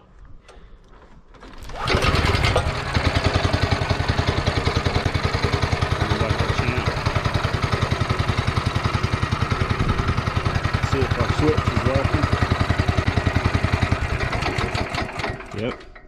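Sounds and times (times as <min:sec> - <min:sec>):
engine starting and idling: 0:01.4 - 0:16.0.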